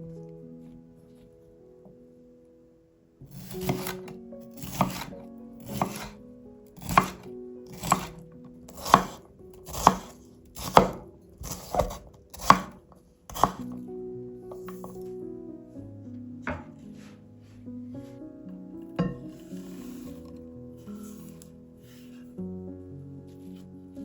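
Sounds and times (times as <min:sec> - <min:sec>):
knife chopping on cutting board: 0:03.3 - 0:06.2, 0:06.8 - 0:13.8, 0:14.6 - 0:15.0.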